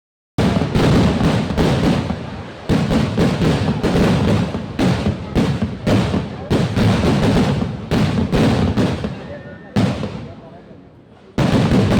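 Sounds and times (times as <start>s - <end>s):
fireworks banging: 0.4s - 11.9s.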